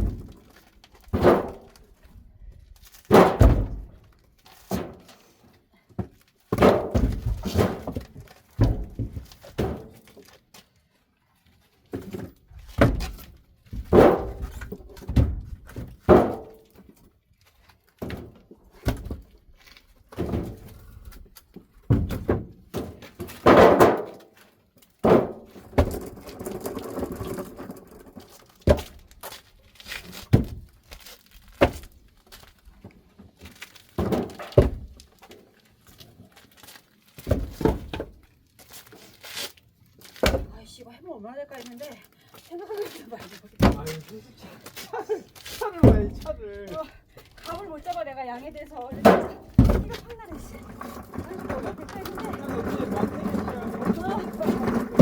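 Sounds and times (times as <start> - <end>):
logs dropped onto stack: 0.0 - 1.8, 2.8 - 3.9, 6.5 - 10.3, 11.9 - 16.6, 21.9 - 24.3, 25.0 - 32.4, 33.4 - 35.0, 37.1 - 38.2, 40.0 - 40.5, 48.9 - 55.0
wood scraping: 23.0 - 40.6, 41.6 - 55.0.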